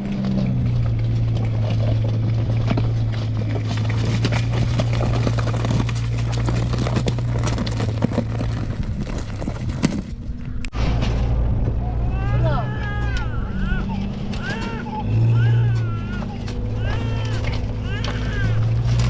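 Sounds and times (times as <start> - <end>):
irregular knocks and rattles: 0.0 - 11.7
engine-driven machine running: 0.0 - 19.0.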